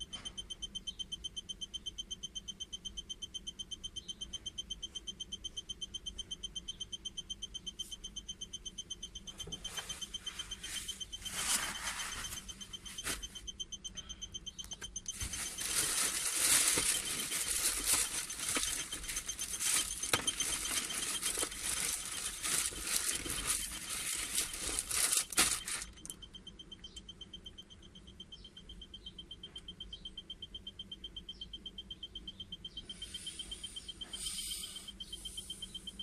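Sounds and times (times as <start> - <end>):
faint pulsing high whine: 0.0 - 36.0
rustling and crinkling: 9.5 - 13.4, 15.1 - 26.2.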